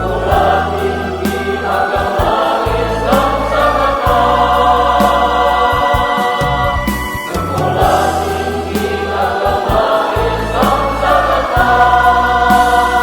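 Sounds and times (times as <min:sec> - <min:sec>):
choir singing a hymn: 0:00.0 - 0:13.0
low steady accompaniment: 0:00.0 - 0:13.0.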